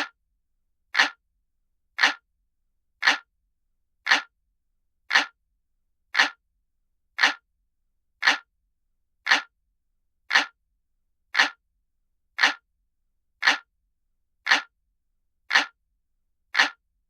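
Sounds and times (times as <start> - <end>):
clock ticking: 1.0 - 1.2, 2.0 - 2.2, 3.0 - 3.3, 4.1 - 4.3, 5.1 - 5.4, 6.2 - 6.4, 7.2 - 7.4, 8.2 - 8.5, 9.3 - 9.5, 10.3 - 10.6, 11.4 - 11.6, 12.4 - 12.6, 13.4 - 13.7, 14.4 - 14.7, 15.5 - 15.8, 16.5 - 16.8.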